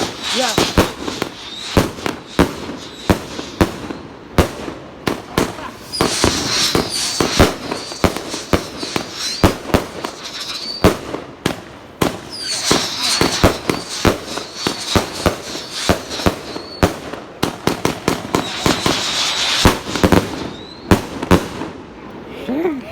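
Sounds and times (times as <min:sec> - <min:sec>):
crackling and hissing shells: 0:00.0 - 0:04.0, 0:05.6 - 0:11.1, 0:12.1 - 0:16.9, 0:17.9 - 0:20.4
firework bangs: 0:00.0 - 0:22.0.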